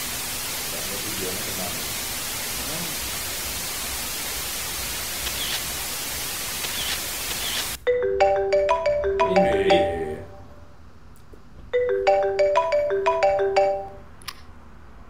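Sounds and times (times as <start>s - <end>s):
loud static hiss: 0.0s - 7.9s
marimba ringtone melody: 7.8s - 10.7s, 11.8s - 14.1s.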